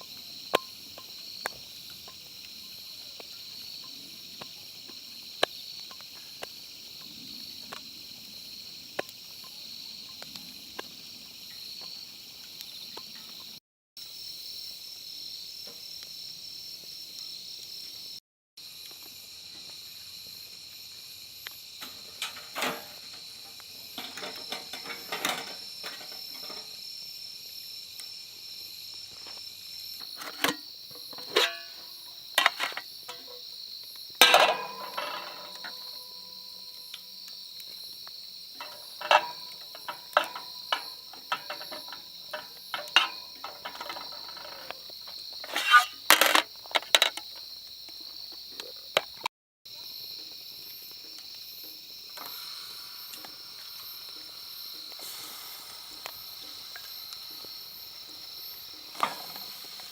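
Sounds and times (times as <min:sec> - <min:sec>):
crickets chirping: 0:00.0 - 0:59.9
objects knocking and clattering: 0:21.8 - 0:26.8, 0:30.0 - 0:33.5, 0:34.2 - 0:37.0, 0:38.6 - 0:47.4.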